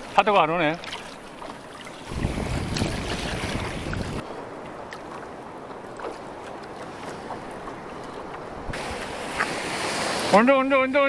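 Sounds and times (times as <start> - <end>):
small water splashes: 0.0 - 10.4
sea water washing: 0.0 - 10.6
wind on microphone: 2.0 - 4.4, 8.2 - 10.3.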